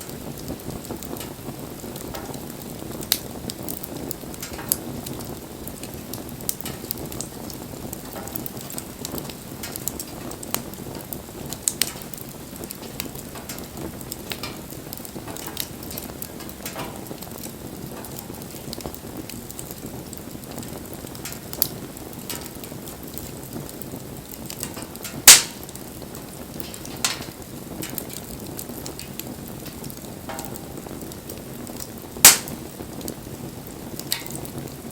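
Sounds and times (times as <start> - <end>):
bonfire flame rushing: 0.0 - 34.9
fire crackles and pops: 0.0 - 34.9.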